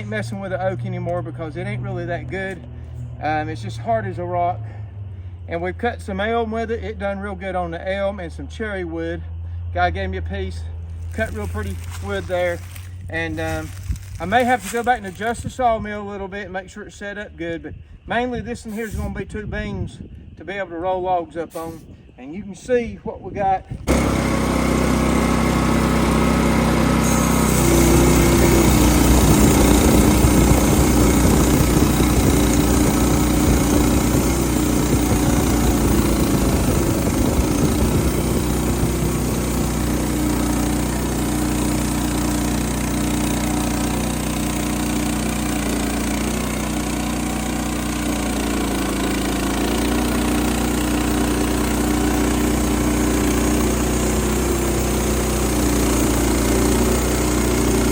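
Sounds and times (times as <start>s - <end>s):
sawmill engine running: 10.7s - 15.6s, 23.7s - 57.9s
band blade sawing log: 11.0s - 15.4s, 21.5s - 21.9s, 23.9s - 40.6s.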